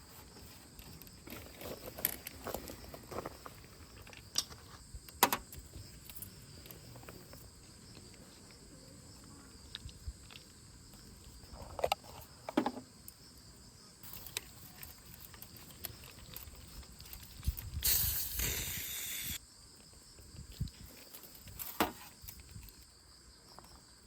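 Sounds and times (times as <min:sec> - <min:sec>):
crickets chirping: 0:00.0 - 0:24.0
clicks and knocks of handling: 0:04.0 - 0:07.2.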